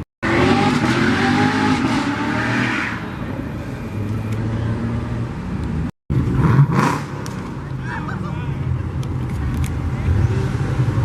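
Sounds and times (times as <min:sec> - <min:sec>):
car engine revving: 0:00.2 - 0:03.1, 0:06.1 - 0:07.6.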